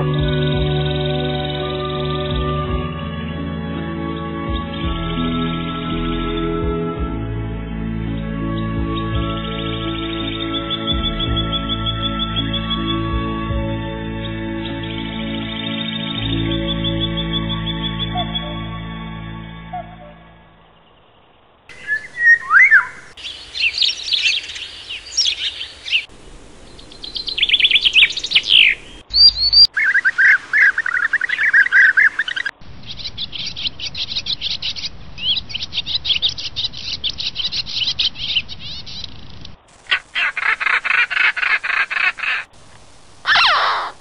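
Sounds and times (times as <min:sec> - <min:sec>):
songbirds singing: 0:00.0 - 0:44.0
bird trill: 0:08.0 - 0:13.3, 0:14.1 - 0:21.0, 0:21.7 - 0:42.5, 0:43.3 - 0:44.0.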